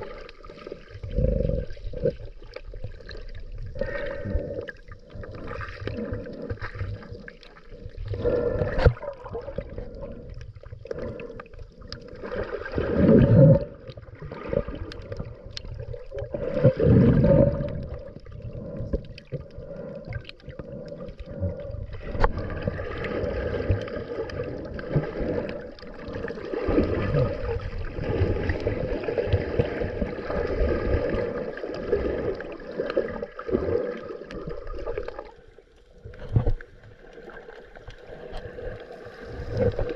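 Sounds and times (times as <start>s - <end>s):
underwater bubbles gurgling: 0.0s - 39.9s
diver breathing through regulator: 1.0s - 2.2s, 3.7s - 27.6s.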